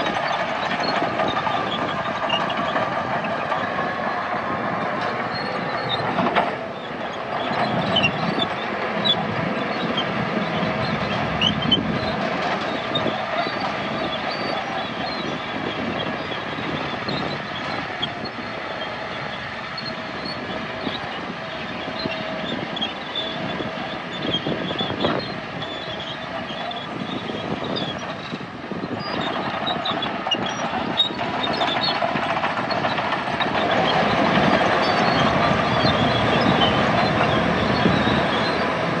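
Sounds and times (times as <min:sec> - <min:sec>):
bulldozer engine running: 0:00.0 - 0:39.0
steel tracks clanking and squealing: 0:00.0 - 0:39.0.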